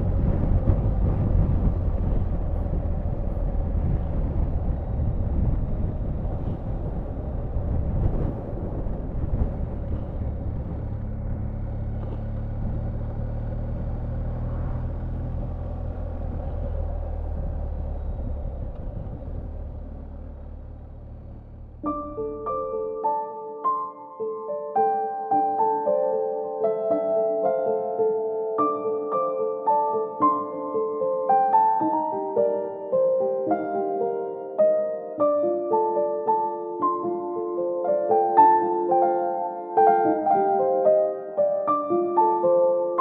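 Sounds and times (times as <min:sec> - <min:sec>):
motorcycle engine hum: 0:00.0 - 0:22.8
wind: 0:00.0 - 0:23.0
road rumble: 0:00.0 - 0:24.1.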